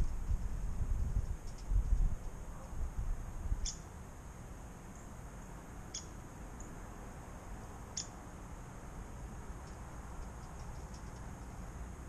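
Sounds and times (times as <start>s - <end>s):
small bird chip calls: 1.2s - 2.8s, 3.5s - 3.9s, 5.8s - 6.8s, 7.9s - 8.2s, 9.6s - 11.6s.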